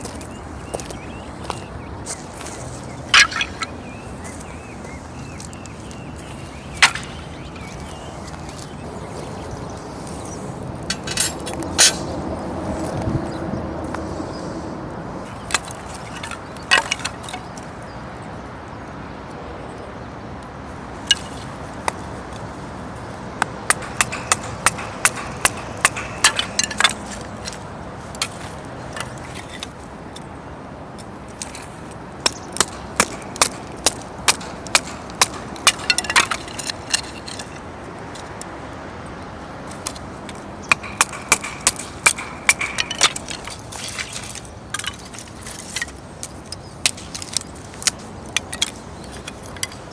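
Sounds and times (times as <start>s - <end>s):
sharp knocks and clicks: 23.4s - 27.6s, 32.2s - 37.6s, 39.8s - 43.7s.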